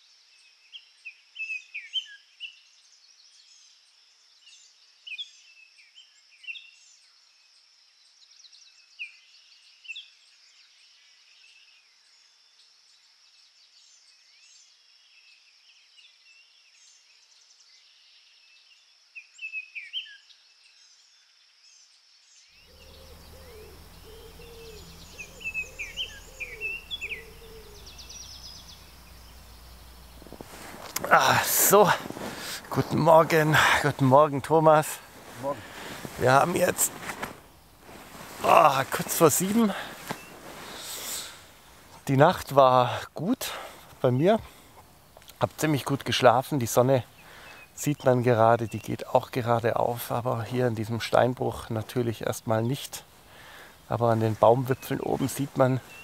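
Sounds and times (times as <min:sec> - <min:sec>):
songbirds chirping and trilling: 0:00.0 - 0:56.0
faint high hiss: 0:22.6 - 0:56.0
low steady hum: 0:22.7 - 0:41.9.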